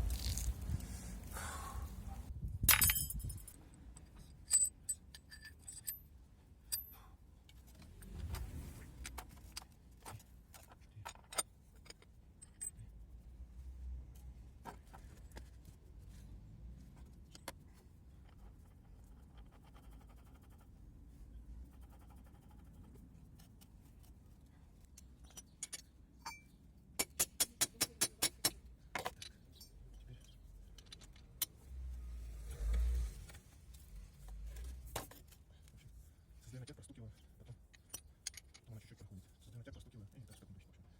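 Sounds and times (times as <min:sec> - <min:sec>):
metal tools clinking: 0:02.7 - 0:07.1, 0:25.0 - 0:28.1.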